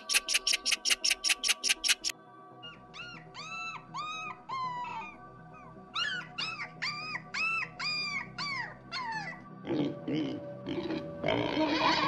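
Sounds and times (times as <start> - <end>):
soft background music: 0.0 - 12.0
puppies whimpering: 3.0 - 9.4.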